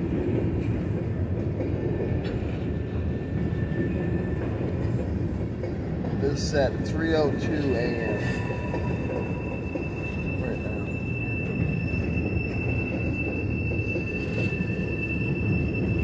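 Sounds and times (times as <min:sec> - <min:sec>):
high-pitched wheel squeal: 0:06.3 - 0:16.0.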